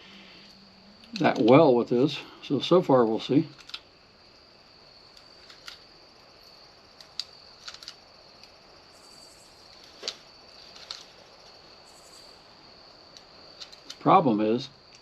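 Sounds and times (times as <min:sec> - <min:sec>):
gear clicks and taps: 0:03.6 - 0:03.8, 0:07.0 - 0:08.6.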